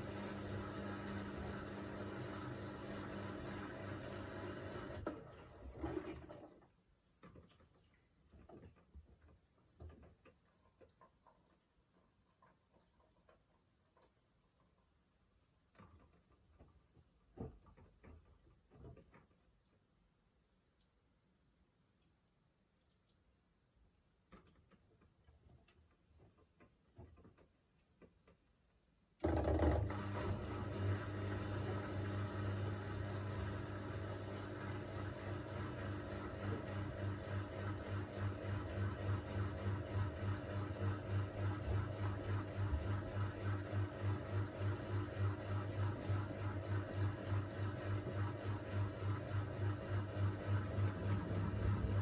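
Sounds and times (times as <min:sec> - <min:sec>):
washing machine water sloshing: 0:00.0 - 0:13.3, 0:34.8 - 0:52.0
faint knocks and drips: 0:05.9 - 0:28.5.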